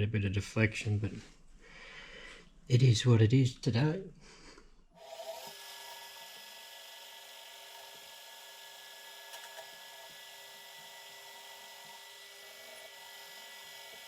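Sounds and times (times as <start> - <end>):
machine tool whining: 5.0 - 14.0.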